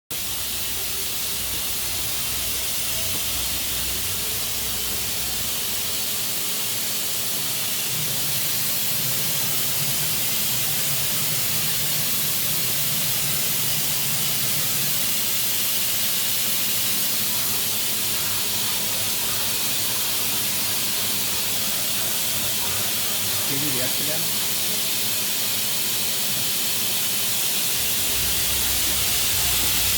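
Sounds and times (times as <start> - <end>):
machining center hiss: 0.1 - 29.9
low machine hum: 27.8 - 29.9.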